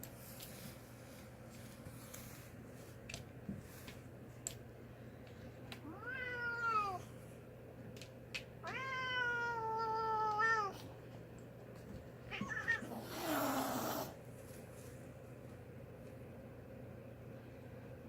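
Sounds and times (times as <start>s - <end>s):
cat yowling: 5.9s - 7.0s, 8.6s - 10.8s
cat hissing: 12.6s - 14.2s.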